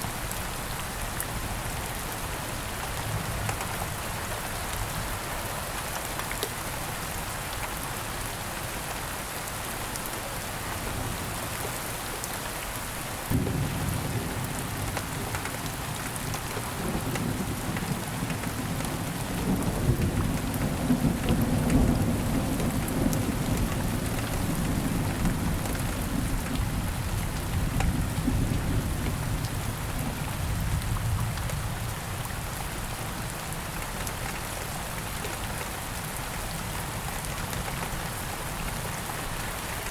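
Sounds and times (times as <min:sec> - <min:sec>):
steady rain falling: 0:00.0 - 0:39.9
thunder rumbling: 0:13.3 - 0:29.4.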